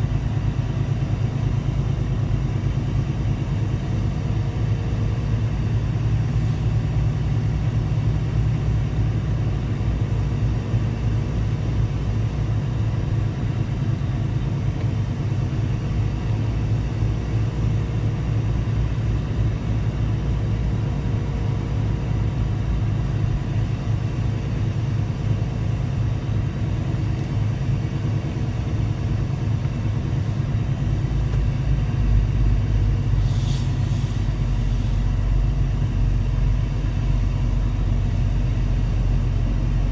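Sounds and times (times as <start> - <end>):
diesel truck engine rumble: 0.0 - 39.9
brief hiss: 33.2 - 35.1.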